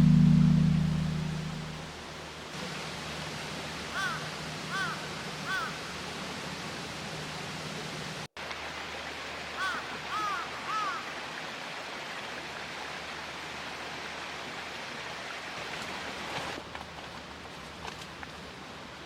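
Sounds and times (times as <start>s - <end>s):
crow cawing: 4.0s - 5.7s, 9.6s - 11.0s.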